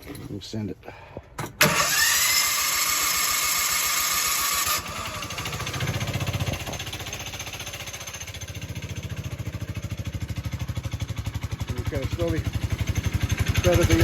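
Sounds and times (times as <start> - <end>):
small engine starter cranking: 1.4 - 8.5
small engine idling: 1.6 - 14.0.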